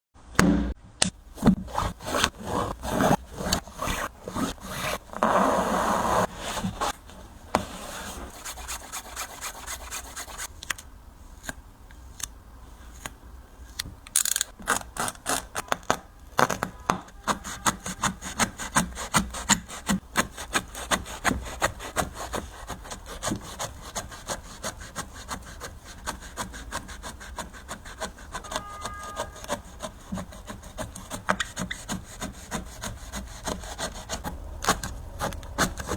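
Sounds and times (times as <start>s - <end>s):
saw cutting through a shoe: 17.2s - 35.9s.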